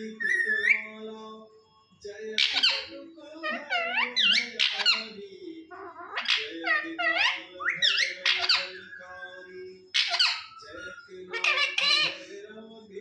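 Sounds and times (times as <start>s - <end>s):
parrot shrill squeaky calls: 2.4s - 2.9s, 3.5s - 5.1s, 5.8s - 8.9s, 10.0s - 10.7s, 11.3s - 12.2s.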